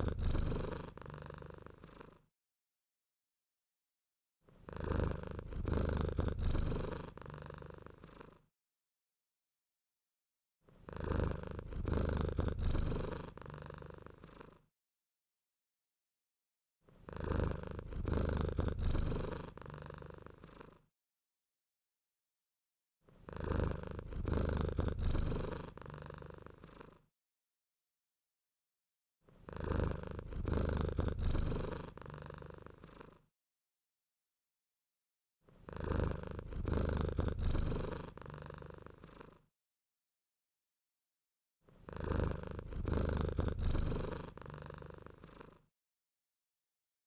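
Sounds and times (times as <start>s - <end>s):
cat purring: 0.0s - 2.2s, 4.6s - 8.4s, 10.8s - 14.6s, 17.0s - 20.8s, 23.2s - 27.0s, 29.4s - 33.2s, 35.6s - 39.4s, 41.8s - 45.7s.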